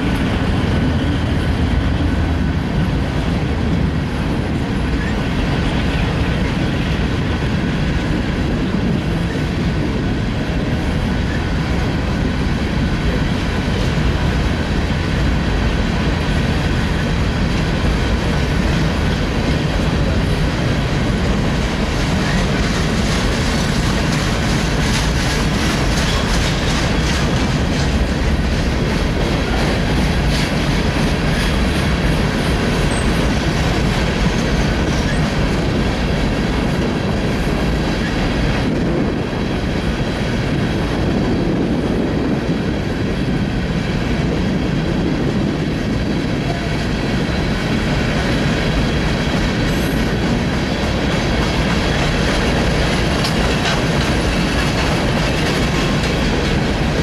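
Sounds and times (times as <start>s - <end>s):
freight train rumbling past: 0.0s - 57.0s
wheels clicking over rail joints: 13.0s - 39.2s, 48.2s - 57.0s.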